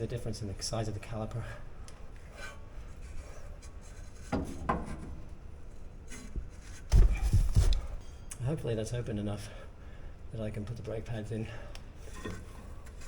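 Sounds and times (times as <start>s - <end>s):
dull low thump: 6.9s - 7.9s.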